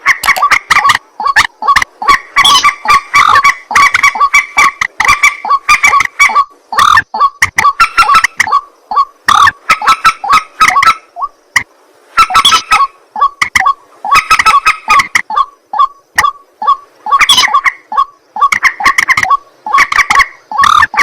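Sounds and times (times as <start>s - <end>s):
waterhen calling harsh honks: 0.0s - 11.4s, 12.1s - 21.0s.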